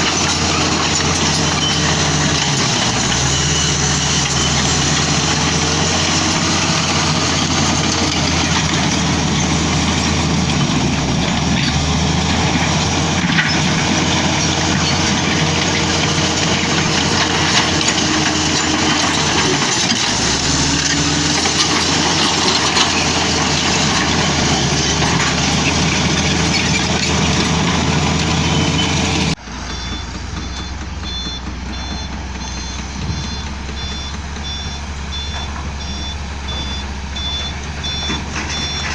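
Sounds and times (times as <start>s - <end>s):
diesel machinery engine running: 0.0s - 38.9s
reversing alarm beeping: 29.6s - 38.9s.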